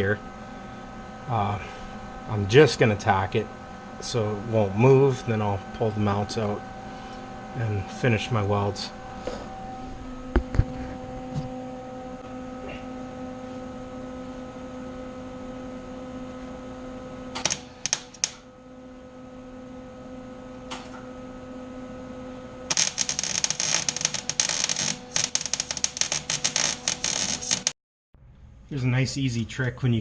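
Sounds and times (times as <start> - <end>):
welder humming: 0.0 - 27.8
welding arc crackling: 17.3 - 18.4, 22.7 - 27.8.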